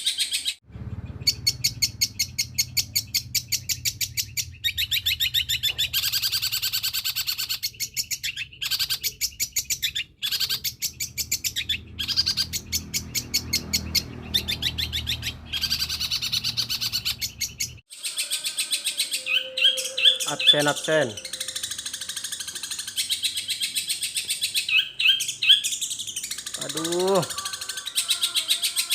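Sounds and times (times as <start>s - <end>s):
shrike chattering song: 0.0s - 28.9s.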